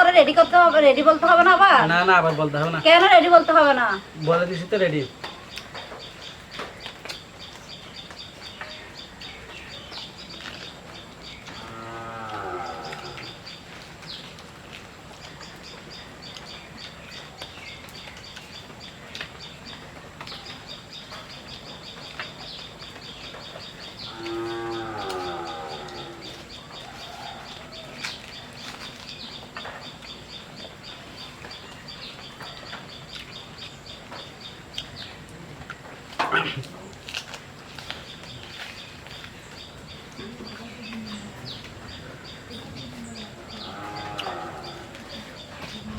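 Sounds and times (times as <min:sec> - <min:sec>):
birds chirping: 0:00.0 - 0:45.9
cow lowing: 0:11.5 - 0:13.4, 0:24.1 - 0:26.5, 0:36.2 - 0:36.7, 0:43.2 - 0:45.9.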